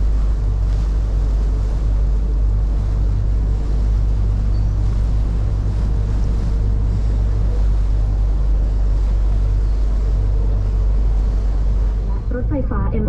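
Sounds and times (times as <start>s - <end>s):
water rushing against hull: 0.0s - 12.9s
deep boat engine rumble: 0.0s - 13.0s
wind buffeting microphone: 0.0s - 13.0s.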